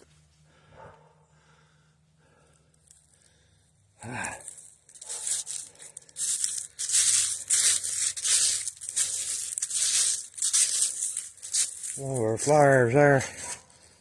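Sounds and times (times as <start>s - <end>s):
rustling crinkling noise: 4.2s - 14.0s.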